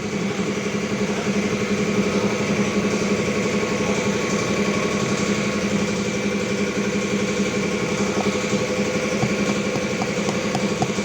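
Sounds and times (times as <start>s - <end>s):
small engine humming: 0.0s - 11.0s.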